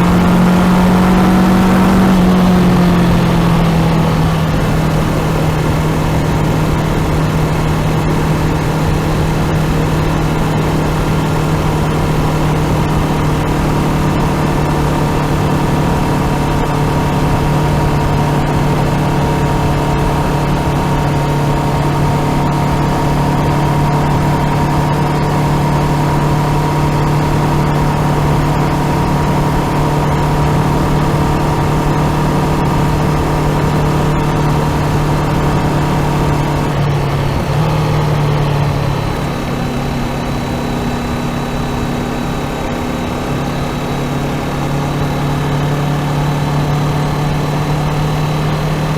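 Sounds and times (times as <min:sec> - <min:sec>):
constant rush of noise: 0:00.0 - 0:48.9
motorcycle engine at steady revs: 0:00.0 - 0:48.9.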